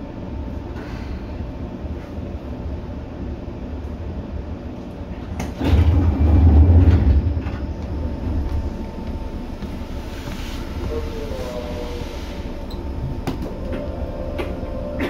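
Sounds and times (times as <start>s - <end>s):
train wheels rumbling on rail: 5.3s - 15.0s.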